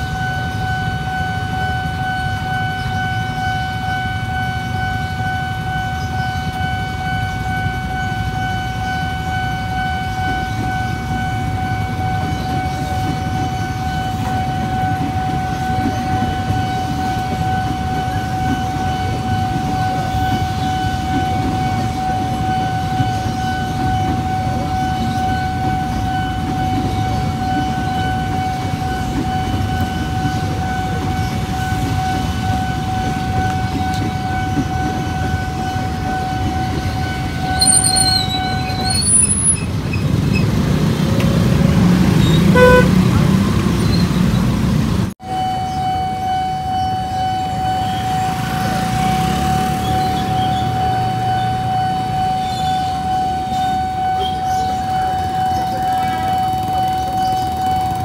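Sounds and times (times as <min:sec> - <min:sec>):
high wavering squeal: 0:00.0 - 0:40.6
crossing warning alarm tone: 0:00.0 - 0:58.0
electric train passing: 0:00.0 - 0:58.0.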